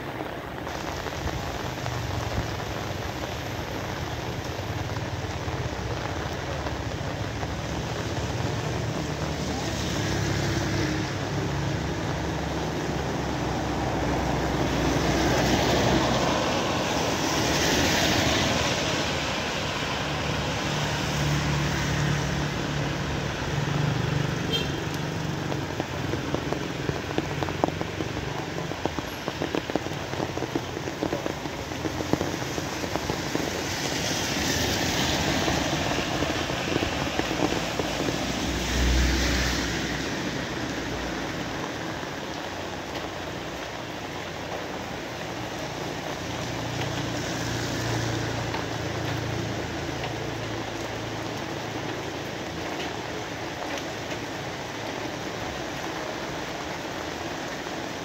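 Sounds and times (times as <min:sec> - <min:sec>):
steady rain: 0:00.0 - 0:58.0
traffic on a wet road: 0:00.0 - 0:58.0
water drips ticking: 0:45.6 - 0:56.0.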